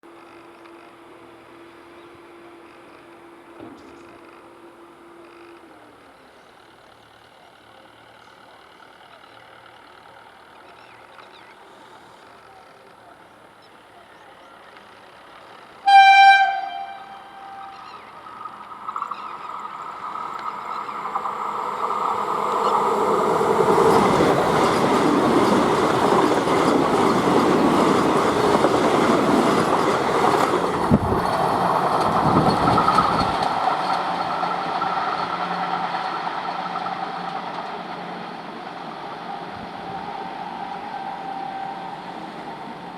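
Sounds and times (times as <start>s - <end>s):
train wheels rushing past: 15.1s - 42.9s
train horn blast: 15.8s - 18.0s.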